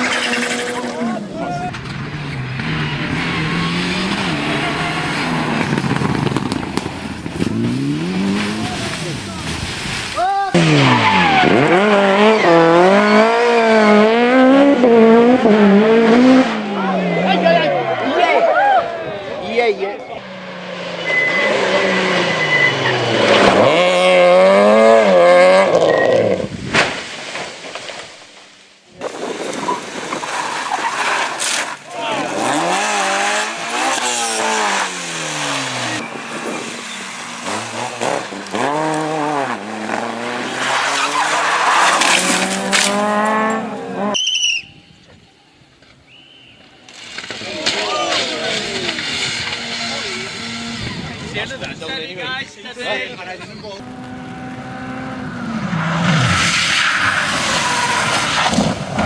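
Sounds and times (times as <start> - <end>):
exhaust crackling: 0.0 - 18.2, 19.0 - 44.2, 46.8 - 59.0
rally car engine revving: 0.0 - 18.9, 19.7 - 26.6, 30.2 - 44.2, 47.2 - 52.0, 52.8 - 59.0
sharp crack: 4.0 - 11.7, 26.6 - 32.4, 39.8 - 43.4, 46.8 - 50.4, 56.2 - 59.0.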